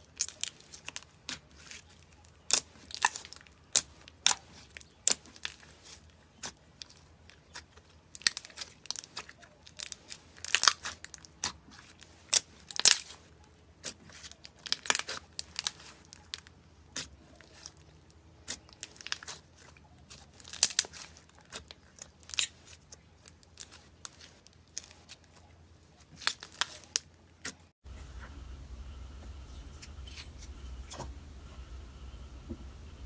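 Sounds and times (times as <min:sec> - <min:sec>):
dry soap crunching and scraping: 0:00.0 - 0:28.4
faint low hum: 0:27.9 - 0:33.0.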